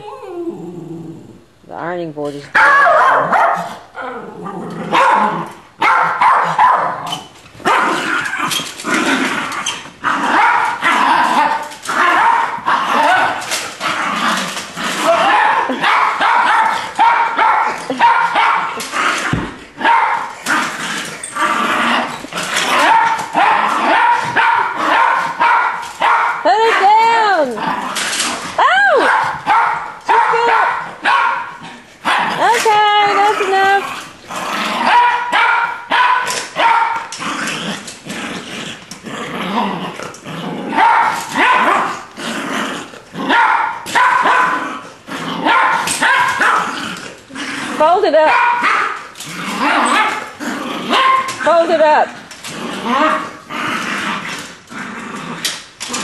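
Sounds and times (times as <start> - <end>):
dog barking and growling: 2.4 - 56.0
dog barking: 2.5 - 3.8, 4.9 - 7.1, 10.3 - 10.8, 12.0 - 13.4, 15.2 - 18.8, 19.8 - 20.3, 22.8 - 27.0, 29.0 - 32.3, 34.9 - 37.0, 40.8 - 42.0, 43.3 - 44.6, 45.4 - 46.7, 48.2 - 49.0, 49.7 - 50.2, 50.9 - 51.3.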